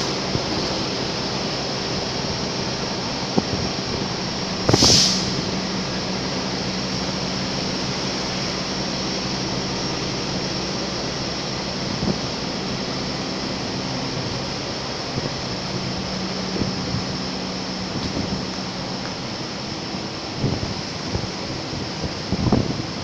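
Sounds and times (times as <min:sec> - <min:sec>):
train rumble and hum: 0:00.0 - 0:23.0
short loud hiss: 0:04.7 - 0:05.5.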